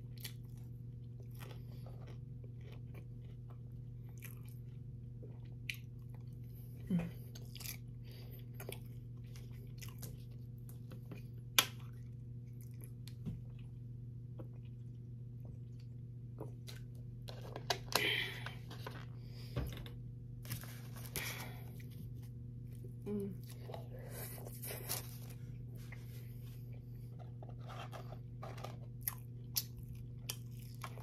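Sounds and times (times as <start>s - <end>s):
low electrical hum: 0.0s - 31.0s
chewing and mouth sounds: 0.1s - 17.0s, 29.0s - 31.0s.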